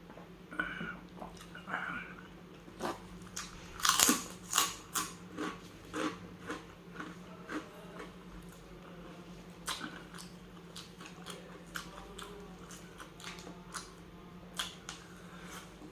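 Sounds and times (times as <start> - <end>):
person chewing food: 1.1 - 1.7, 2.7 - 8.6, 9.6 - 14.0, 14.6 - 15.9.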